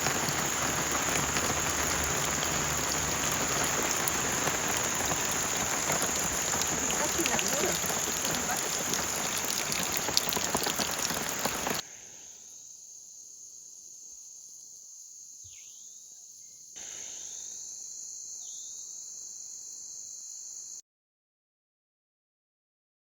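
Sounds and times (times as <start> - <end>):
heavy rain falling: 0.0 - 11.8
high-pitched insect drone: 0.0 - 20.8.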